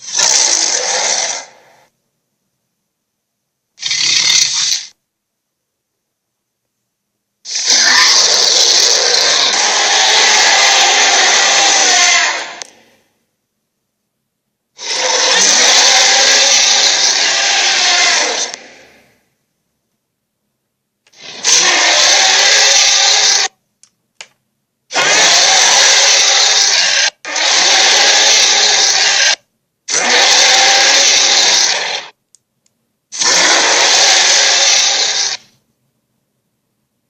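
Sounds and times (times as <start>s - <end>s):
harsh rasping dragon roars: 0.0s - 1.8s, 7.5s - 12.7s, 14.8s - 19.2s, 21.1s - 23.5s, 25.0s - 32.2s, 33.2s - 35.4s.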